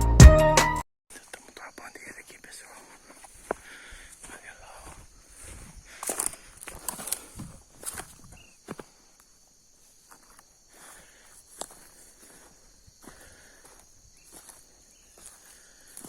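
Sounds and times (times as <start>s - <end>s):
high-pitched insect chorus: 1.2s - 16.0s
footsteps in dry leaves: 4.1s - 8.6s.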